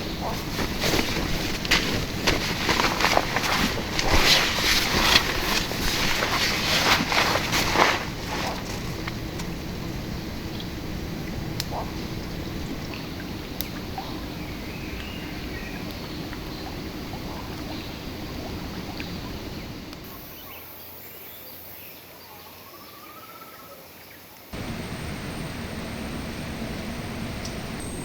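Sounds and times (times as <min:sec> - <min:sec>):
faint clicks: 0:24.6 - 0:28.0
river water flowing: 0:24.6 - 0:28.0.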